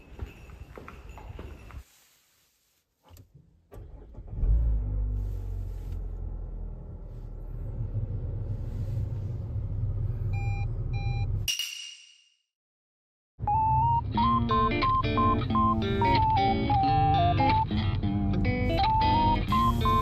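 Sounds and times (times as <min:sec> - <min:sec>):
car engine starting and idling: 0:03.1 - 0:11.5, 0:13.4 - 0:20.0
short electronic car beeps: 0:10.3 - 0:11.4, 0:13.5 - 0:16.8, 0:18.9 - 0:20.0.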